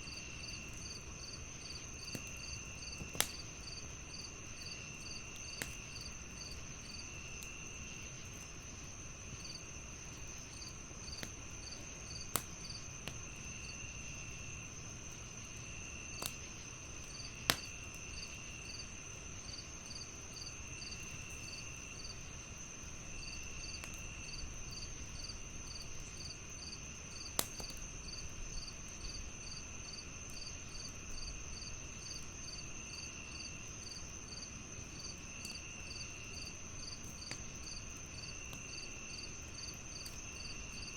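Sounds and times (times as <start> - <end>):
crickets chirping: 0.0 - 40.9
log fire crackling: 0.0 - 40.9
insect trill: 15.6 - 27.4, 28.0 - 40.9.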